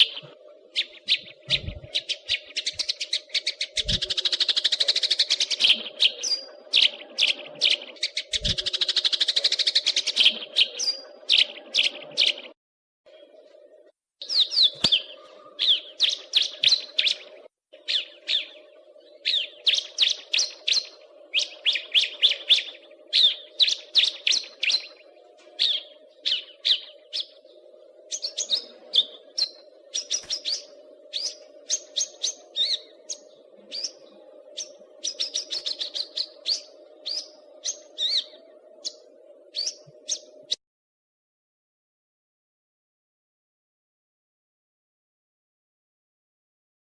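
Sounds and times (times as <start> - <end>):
low hum: 0.0 - 8.9
songbird chirping: 0.0 - 40.6.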